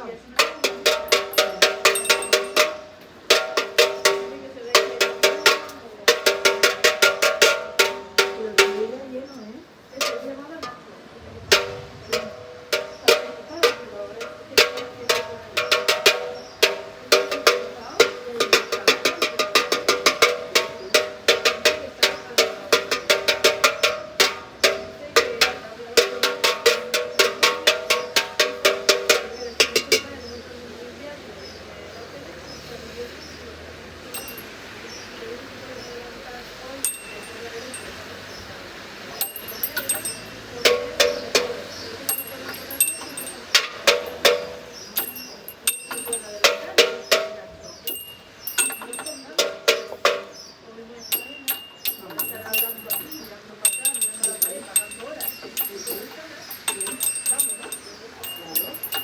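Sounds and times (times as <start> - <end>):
small bells clinking: 0.6 - 2.9, 34.1 - 34.7, 36.8 - 50.4, 51.1 - 59.0.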